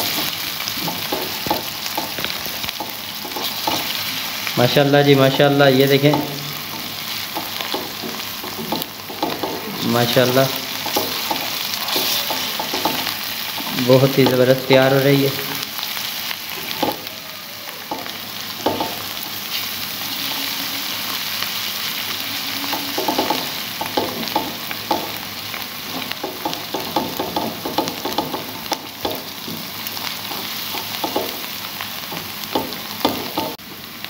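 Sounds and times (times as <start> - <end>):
onions sizzling in hot oil: 0.0 - 34.0
spatula scraping pan: 5.4 - 14.4.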